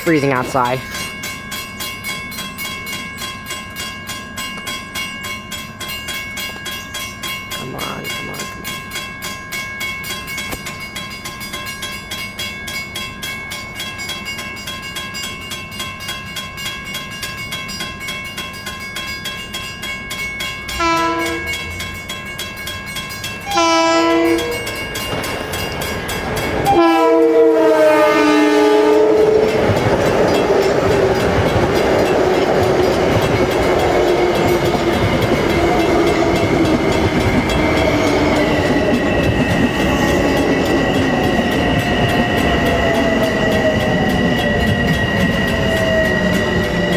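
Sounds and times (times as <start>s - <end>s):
crossing bell ringing: 0.0s - 46.9s
train running past: 0.0s - 46.9s
steady tones: 18.6s - 46.9s
train air horn: 20.8s - 21.5s, 23.4s - 24.6s, 26.7s - 29.5s.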